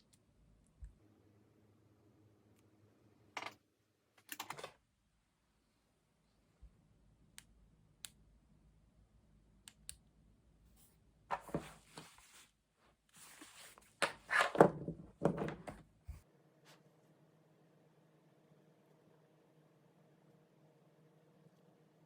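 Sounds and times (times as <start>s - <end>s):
rustling and handling noises: 10.8s - 16.8s.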